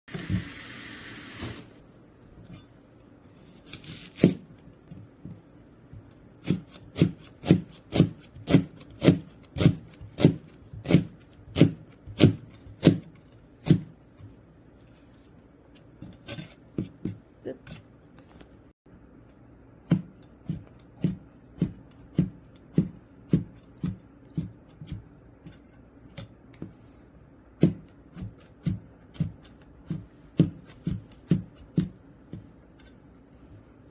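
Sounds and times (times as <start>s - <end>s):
knife chopping on wooden board: 6.4s - 14.3s, 19.8s - 25.1s, 27.6s - 32.9s.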